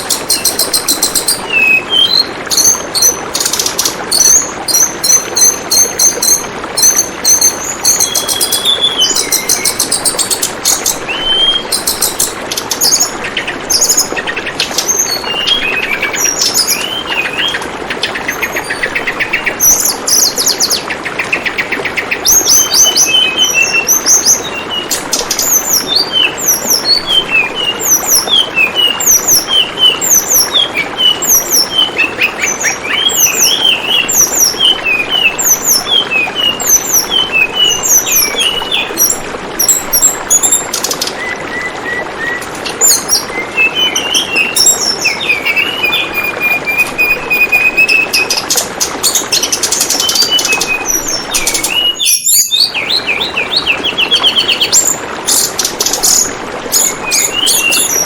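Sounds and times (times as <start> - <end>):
bird chirping: 0.0 - 58.0
trickling water: 0.0 - 58.0.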